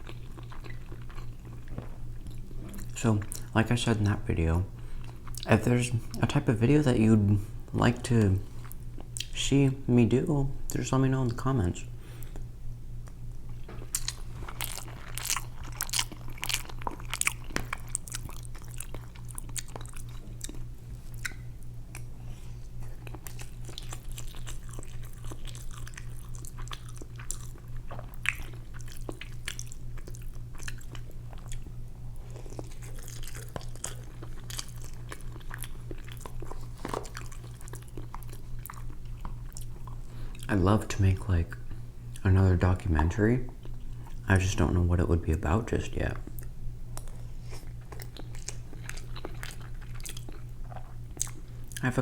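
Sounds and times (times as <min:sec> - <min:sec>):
person chewing food: 0:00.0 - 0:04.2, 0:04.8 - 0:05.5, 0:12.1 - 0:40.5, 0:46.2 - 0:51.8
steady low hum: 0:00.0 - 0:52.0.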